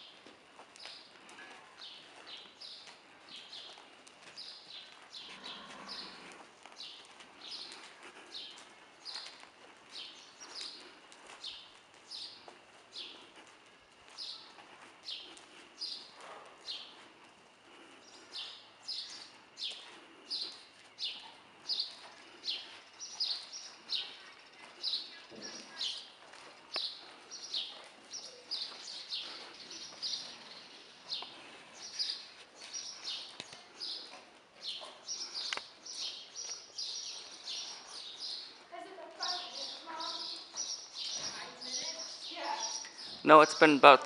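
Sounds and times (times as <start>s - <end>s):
bird chirping: 18.0s - 38.6s, 39.2s - 44.0s.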